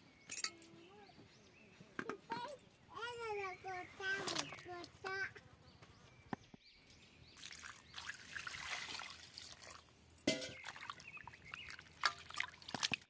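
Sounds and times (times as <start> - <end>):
water trickling and pouring: 7.4 - 13.0.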